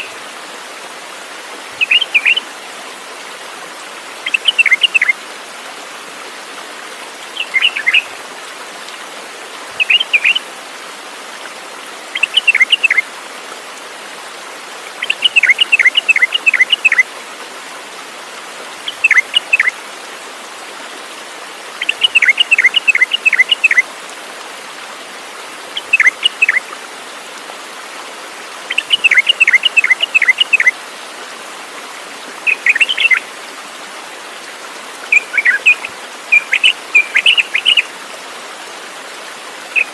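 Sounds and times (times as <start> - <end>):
songbird singing: 1.8 - 2.4, 4.2 - 5.2, 7.3 - 8.1, 9.8 - 10.4, 12.1 - 13.0, 15.0 - 17.1, 18.8 - 19.8, 21.8 - 23.8, 25.8 - 26.6, 28.7 - 30.8, 32.4 - 33.3, 35.1 - 37.9.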